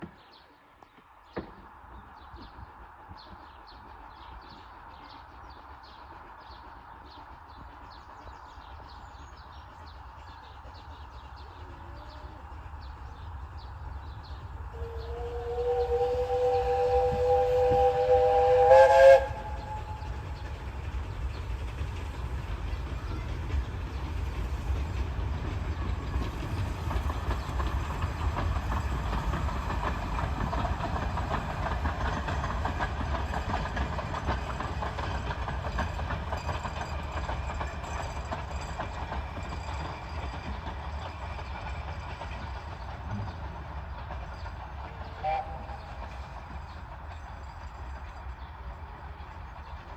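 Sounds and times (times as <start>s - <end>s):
train rumbling: 0.0s - 49.9s
steam locomotive whistle: 14.7s - 20.3s, 45.2s - 46.0s.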